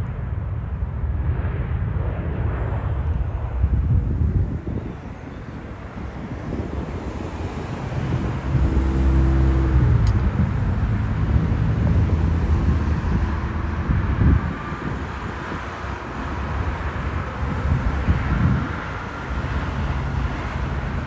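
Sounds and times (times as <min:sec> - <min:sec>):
vehicle engine passing: 0:07.2 - 0:15.5.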